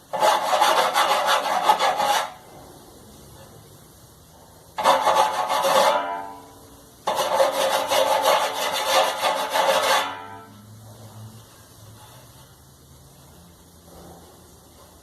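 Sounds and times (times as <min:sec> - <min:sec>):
hand file rasping on metal: 0:00.1 - 0:02.4, 0:04.8 - 0:06.1, 0:07.1 - 0:10.4.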